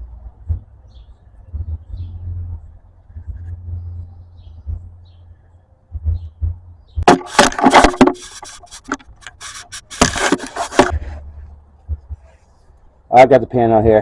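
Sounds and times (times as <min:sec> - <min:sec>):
plastic pan scraping on ground: 0:07.1 - 0:11.2.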